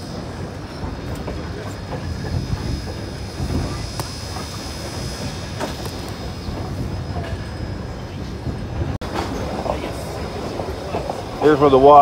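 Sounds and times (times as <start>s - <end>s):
train wheels rumbling on rails: 0.0s - 12.0s
faint clicks at rail joints: 5.6s - 6.3s.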